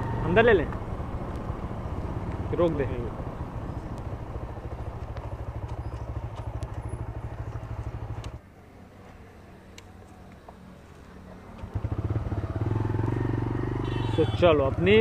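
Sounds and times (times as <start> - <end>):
motorcycle engine puttering: 0.0 - 8.4.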